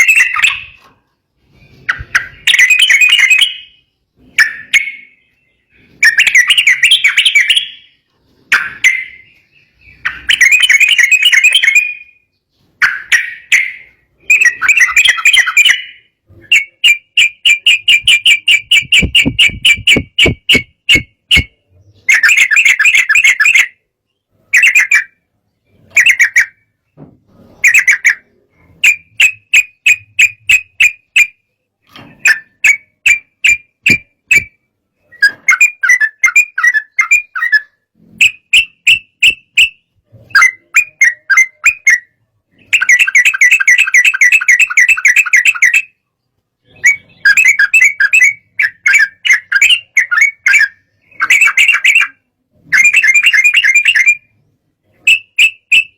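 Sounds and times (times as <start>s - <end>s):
bulbul singing chattering notes: 1.7s - 23.7s.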